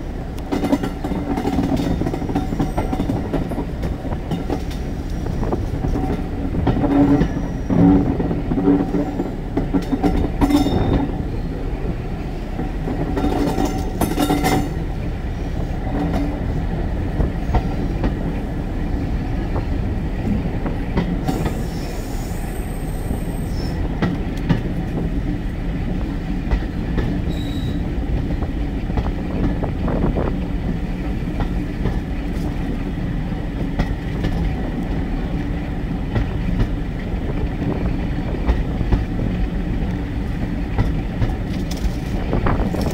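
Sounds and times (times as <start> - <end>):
train wheels rumbling on rail: 0.0 - 42.9
clattering over track: 0.4 - 11.2, 12.6 - 14.9, 33.6 - 42.9
wheel squeals: 7.0 - 7.9, 27.2 - 27.9.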